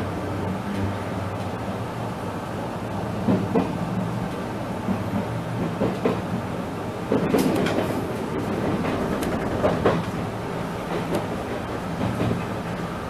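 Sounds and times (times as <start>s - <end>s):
train running hum: 0.0s - 13.0s
wheels clacking over rail joints: 3.2s - 13.0s.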